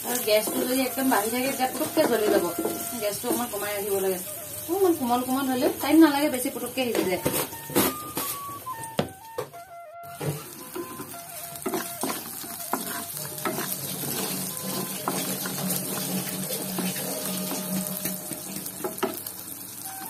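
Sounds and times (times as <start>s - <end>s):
seed pods sizzling in oil: 0.0s - 20.0s
wooden spatula tapping and scraping: 0.2s - 3.6s, 6.8s - 19.2s.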